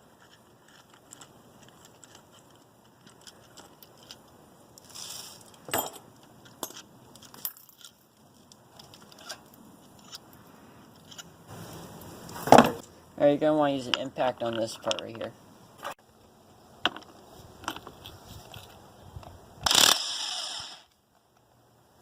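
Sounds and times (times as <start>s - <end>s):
metal tools clicking and clinking: 5.4s - 8.0s.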